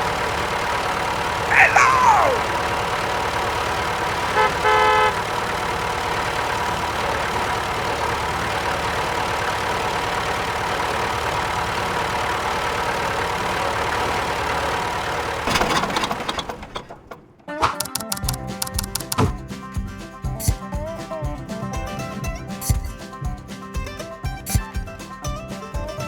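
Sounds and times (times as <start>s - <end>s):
tractor engine idling: 0.0s - 26.0s
horn-like beep: 4.3s - 5.2s
rapid clicks: 17.8s - 19.4s.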